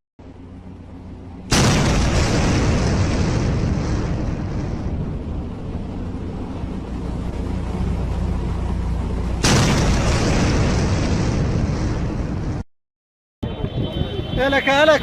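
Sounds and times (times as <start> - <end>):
heavy vehicle engine humming: 0.2 - 12.6
wind noise on microphone: 13.4 - 15.0.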